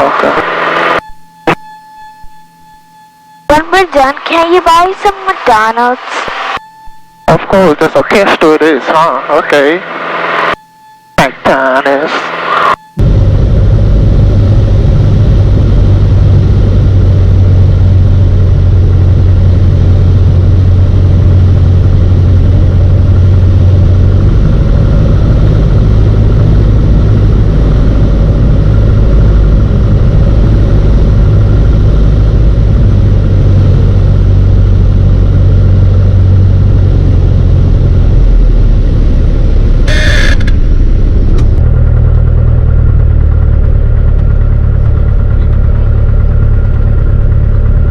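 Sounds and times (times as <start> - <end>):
light aircraft engine droning: 11.7 - 47.9.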